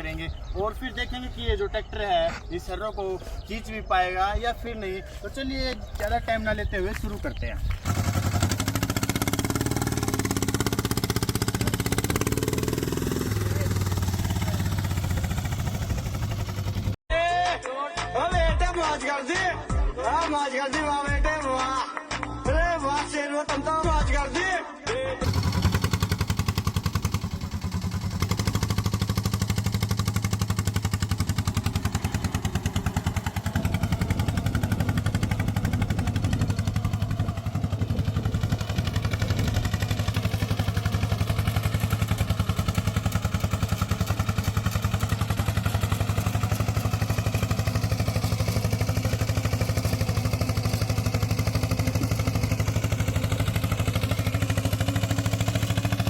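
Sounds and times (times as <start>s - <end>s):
small tractor engine running: 5.6s - 17.0s, 25.2s - 56.0s.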